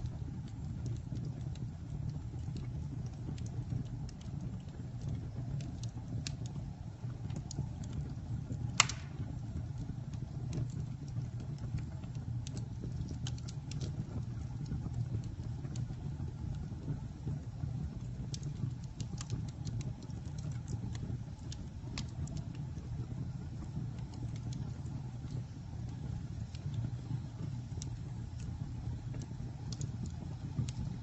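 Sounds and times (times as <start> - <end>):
campfire crackling: 0.0 - 31.0
loud pop: 8.8 - 9.2.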